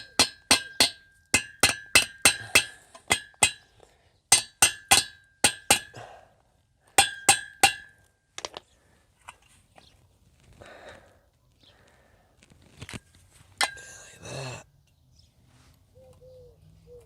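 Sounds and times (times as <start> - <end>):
hammer striking metal: 0.0 - 3.6, 4.3 - 6.0, 7.0 - 8.0.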